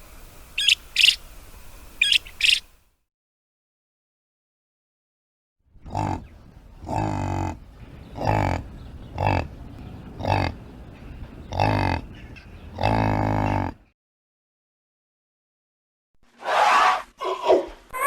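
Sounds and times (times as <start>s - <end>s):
yak grunting: 5.8s - 10.7s, 11.4s - 13.9s.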